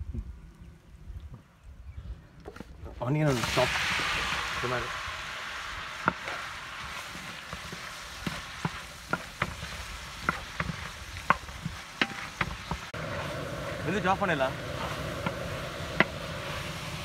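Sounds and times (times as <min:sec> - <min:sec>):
vegetables sizzling in oil: 0:03.0 - 0:17.0
wooden spoon scraping metal pan: 0:07.1 - 0:13.3.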